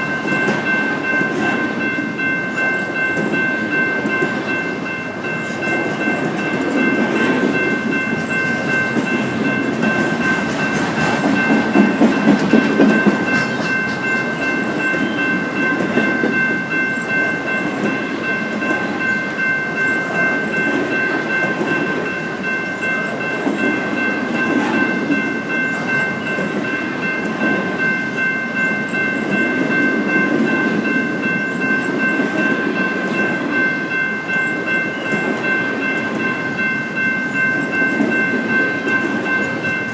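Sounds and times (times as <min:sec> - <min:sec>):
train cars rumbling past: 0:00.0 - 0:39.9
wheels clacking over rails: 0:00.0 - 0:39.9.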